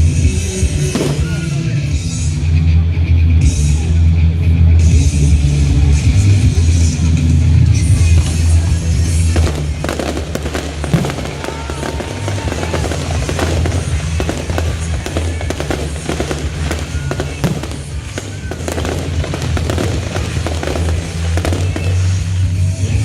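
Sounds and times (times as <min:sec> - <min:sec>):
loud music with heavy bass: 0:00.0 - 0:23.0
fireworks bursting and crackling: 0:00.6 - 0:02.1, 0:07.8 - 0:23.0.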